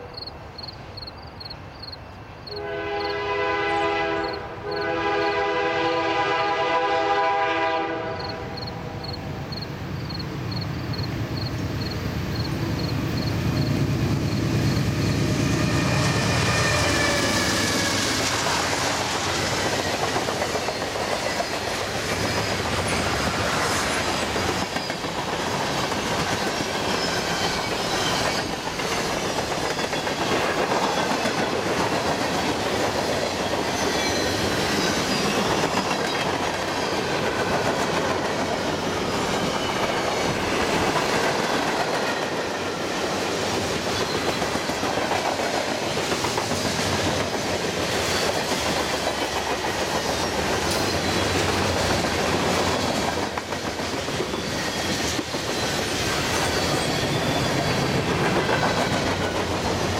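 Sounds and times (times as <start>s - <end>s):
diesel locomotive engine: 0.0s - 59.9s
train air horn: 2.5s - 9.0s.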